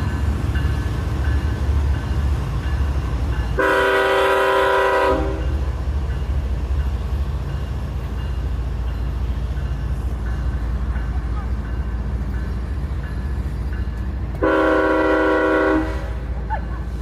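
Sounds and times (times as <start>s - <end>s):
freight train rumbling: 0.0s - 17.0s
locomotive horn blast: 3.6s - 5.5s, 14.4s - 16.2s.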